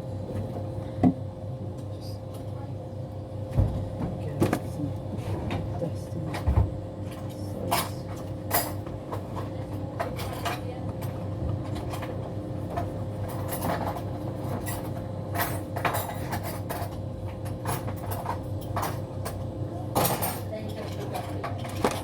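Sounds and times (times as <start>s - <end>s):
knocks and taps inside dryer: 1.0s - 1.2s, 3.5s - 4.7s, 6.4s - 6.8s.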